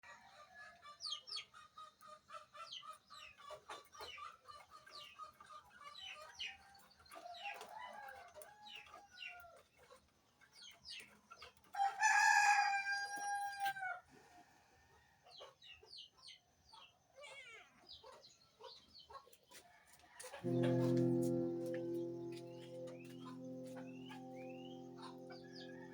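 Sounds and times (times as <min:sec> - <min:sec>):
rooster crowing: 0:11.8 - 0:14.0.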